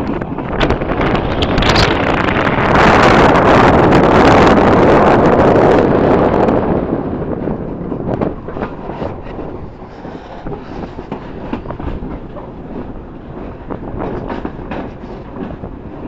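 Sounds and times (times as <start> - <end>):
train rumble: 0.0 - 16.0
wind on microphone: 0.0 - 16.0
wheels clicking over rail joints: 6.8 - 16.0.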